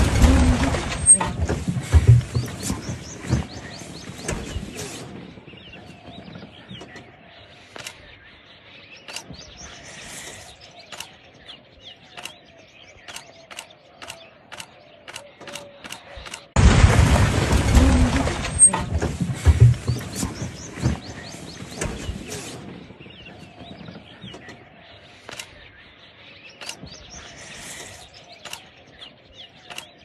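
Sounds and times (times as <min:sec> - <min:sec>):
birds chirping faintly: 0:00.0 - 0:30.0
sharp evenly spaced clicks: 0:10.8 - 0:11.4, 0:12.0 - 0:16.6, 0:26.5 - 0:27.0.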